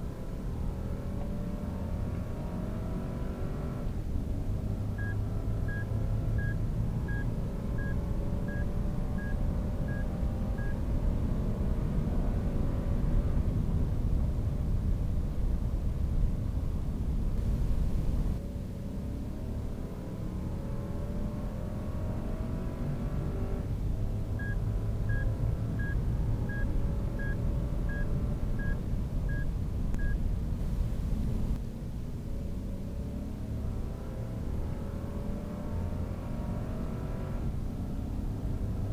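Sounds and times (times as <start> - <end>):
car engine at speed: 0.0 - 38.9
road rumble: 0.0 - 38.9
vehicle warning chime beeping: 5.0 - 10.8, 24.4 - 30.2.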